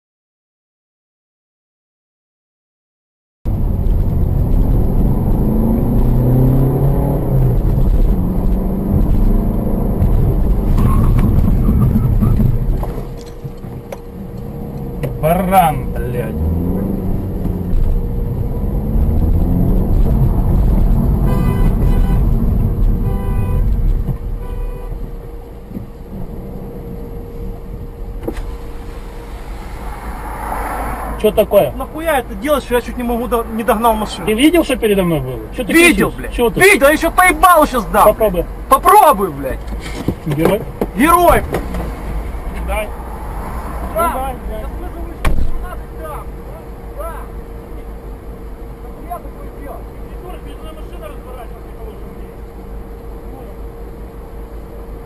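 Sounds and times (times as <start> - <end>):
car engine and road noise: 3.5 - 55.0
car horn blasts: 21.1 - 25.4.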